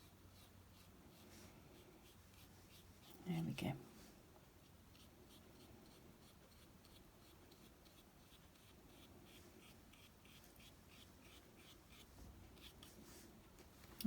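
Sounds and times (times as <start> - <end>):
paintbrush scratching on paper: 0.0 - 3.7, 4.6 - 13.4.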